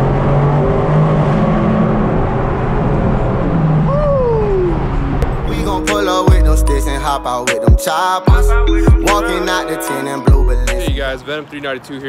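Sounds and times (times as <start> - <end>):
car engine and exhaust: 0.0 - 7.4.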